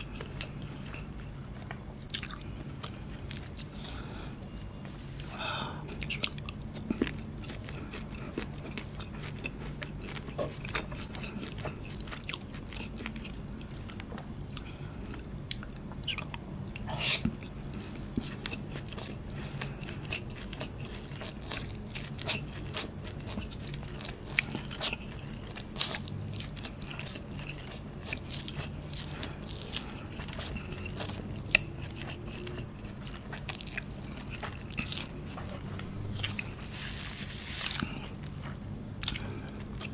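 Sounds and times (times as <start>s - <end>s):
person chewing noodles: 0.0s - 39.9s.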